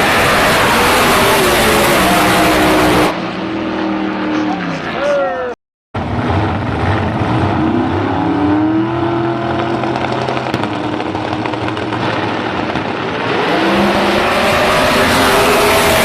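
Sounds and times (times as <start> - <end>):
drag racing car engines running: 0.0 - 4.9, 6.0 - 12.2.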